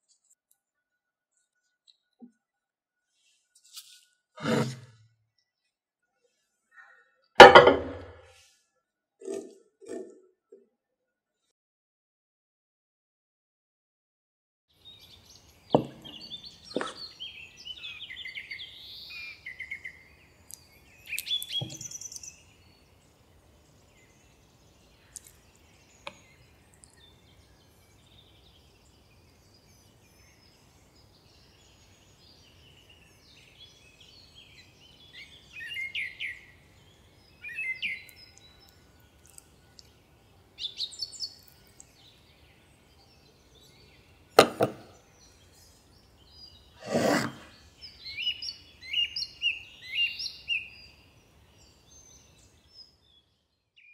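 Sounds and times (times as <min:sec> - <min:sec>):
sharp knocks: 0:07.4 - 0:08.3, 0:44.4 - 0:44.9
birds singing and chirping: 0:14.8 - 0:53.9.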